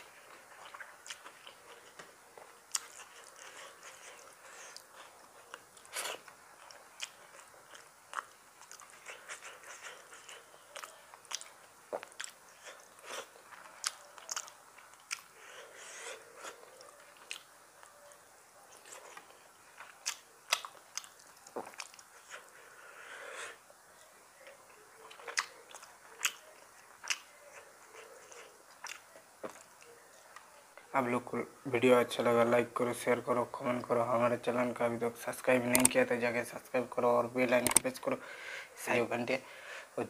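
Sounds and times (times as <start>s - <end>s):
wet chewing and mouth smacks: 0.3s - 17.9s, 18.7s - 22.6s, 24.4s - 30.5s.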